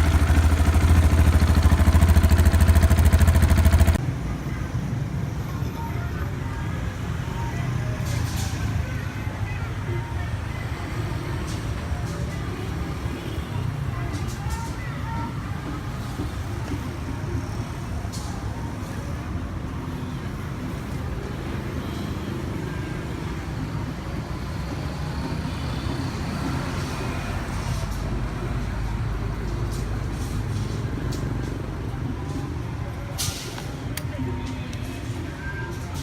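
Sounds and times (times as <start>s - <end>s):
motorcycle exhaust rumble: 0.0s - 4.0s.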